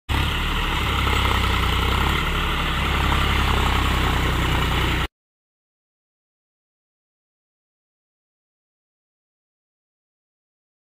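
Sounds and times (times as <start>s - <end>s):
tractor diesel engine running: 0.1s - 5.1s.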